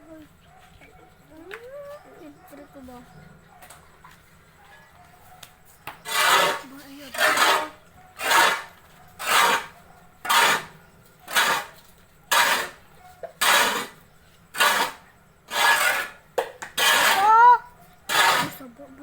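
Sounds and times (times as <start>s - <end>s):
tool scraping through sawdust: 5.9s - 18.7s.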